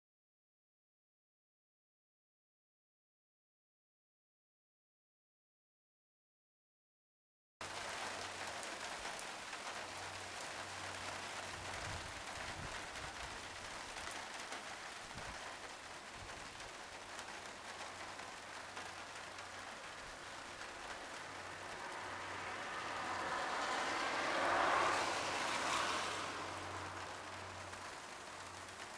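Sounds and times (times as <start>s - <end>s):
steady rain falling: 7.6s - 28.9s.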